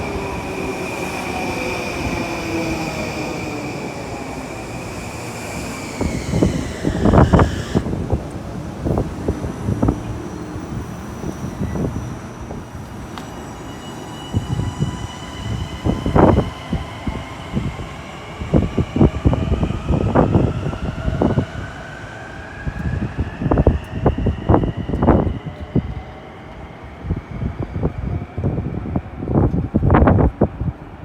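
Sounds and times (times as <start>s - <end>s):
rising whine: 0.0s - 12.2s.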